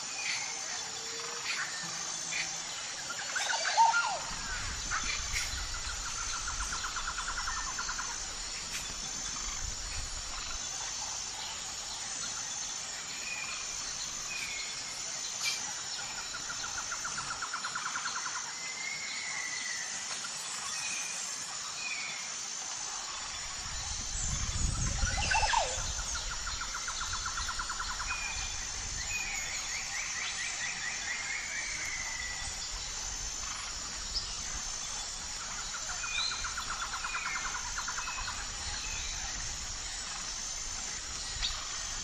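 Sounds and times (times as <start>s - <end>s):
insect buzz: 0.0s - 42.0s
pulsing insect chirps: 0.0s - 42.0s
birds whistled calls: 24.4s - 29.6s.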